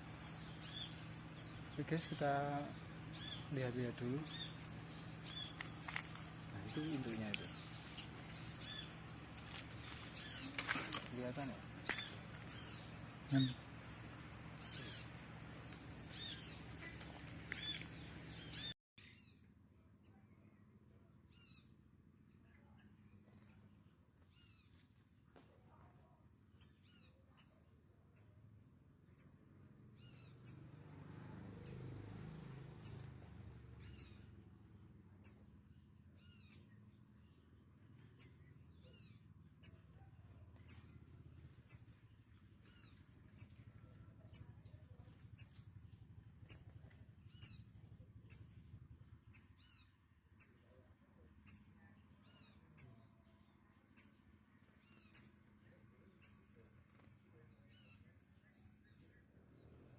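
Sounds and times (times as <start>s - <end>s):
small bird chirping: 0.0s - 24.9s, 26.5s - 59.9s.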